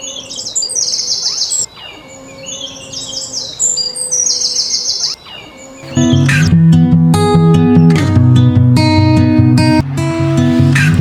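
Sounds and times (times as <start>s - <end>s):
songbird singing trills: 0.0s - 6.6s.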